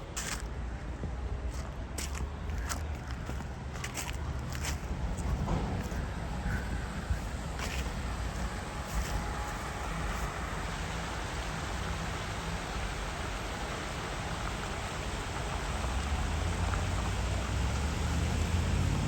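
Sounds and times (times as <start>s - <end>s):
wind rumble on microphone: 0.0s - 19.0s
swollen river rushing: 6.2s - 19.0s.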